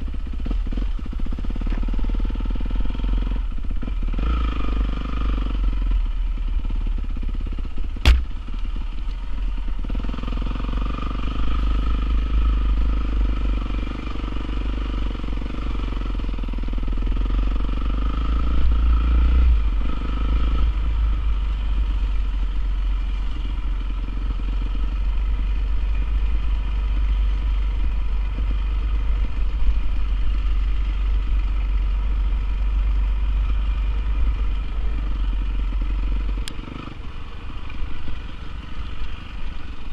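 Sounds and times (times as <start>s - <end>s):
motorcycle engine running: 0.0s - 39.9s
sharp knock: 8.0s - 8.4s.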